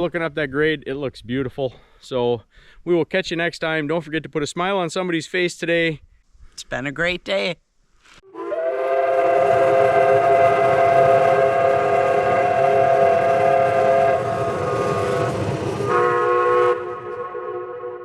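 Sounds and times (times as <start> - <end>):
steam locomotive whistle: 8.2 - 18.0.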